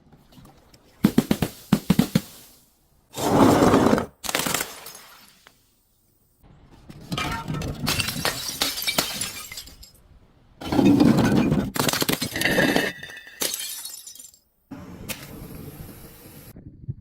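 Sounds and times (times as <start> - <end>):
glass crushing and shattering: 4.2 - 5.4, 7.1 - 10.0, 10.6 - 14.4.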